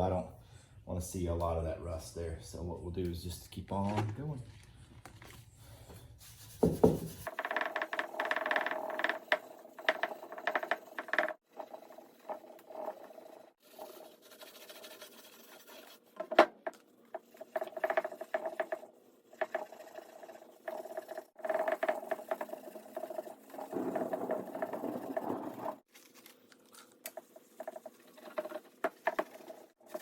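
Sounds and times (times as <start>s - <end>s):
steel wool scrubbing metal: 17.1s - 25.9s.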